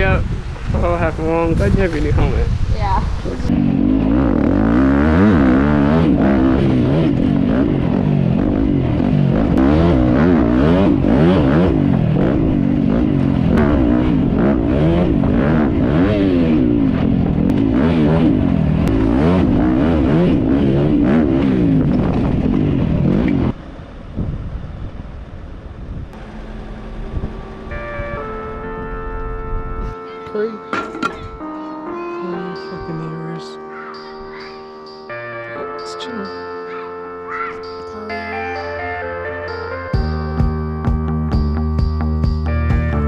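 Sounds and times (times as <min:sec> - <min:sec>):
dirt bike engine revving: 0:03.4 - 0:23.6, 0:26.2 - 0:29.8.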